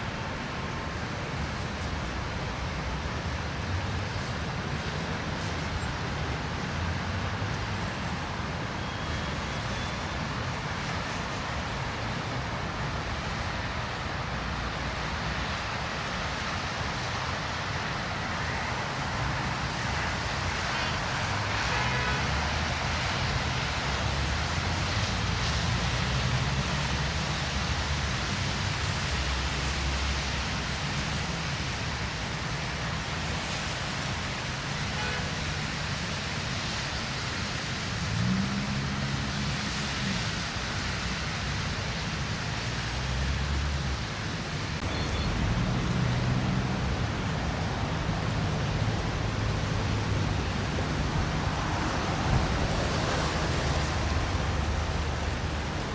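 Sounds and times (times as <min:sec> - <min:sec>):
street traffic hiss: 0:00.0 - 0:55.9
passing vehicle engines: 0:17.7 - 0:55.9.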